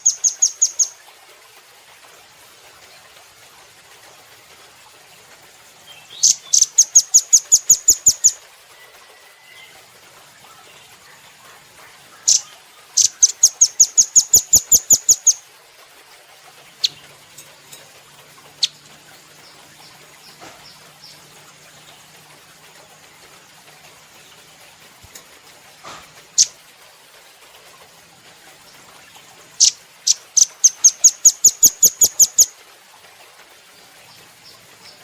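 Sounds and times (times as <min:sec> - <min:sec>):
bird singing rapid trills: 0:00.0 - 0:01.0, 0:05.8 - 0:08.4, 0:12.0 - 0:15.4, 0:16.7 - 0:17.8, 0:18.5 - 0:22.1, 0:29.6 - 0:32.5
bird chips: 0:12.2 - 0:15.4.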